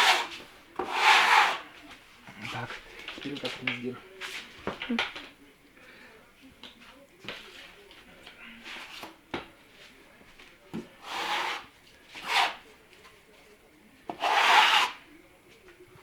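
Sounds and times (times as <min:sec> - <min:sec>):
spatula scraping putty on wall: 0:00.0 - 0:01.7, 0:11.0 - 0:12.6, 0:14.1 - 0:15.0.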